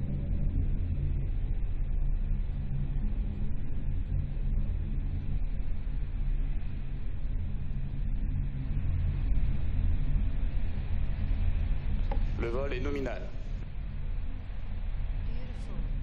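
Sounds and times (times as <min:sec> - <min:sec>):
rocket engines rumbling: 0:12.1 - 0:13.6.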